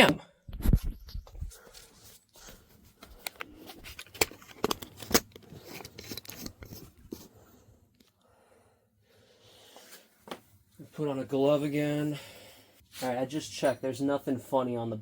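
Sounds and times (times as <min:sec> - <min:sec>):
television parts clicking and knocking: 0:03.1 - 0:07.2.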